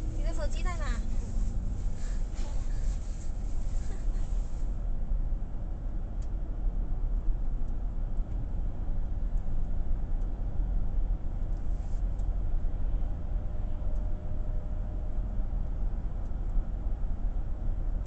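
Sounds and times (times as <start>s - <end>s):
car interior road rumble: 0.0s - 18.0s.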